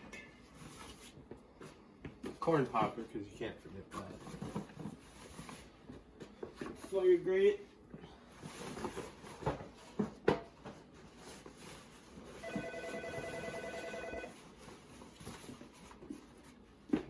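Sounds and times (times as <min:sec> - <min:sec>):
electronic telephone ringer trilling: 0:12.4 - 0:14.3.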